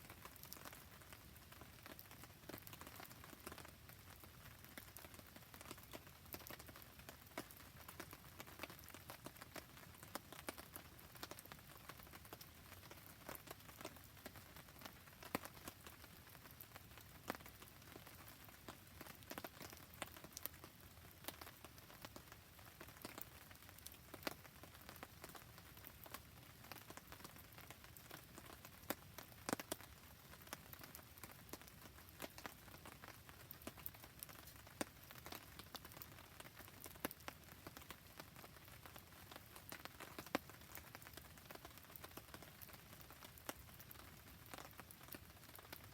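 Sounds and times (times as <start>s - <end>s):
rain pattering: 0.0s - 45.9s
campfire crackling: 9.8s - 45.9s.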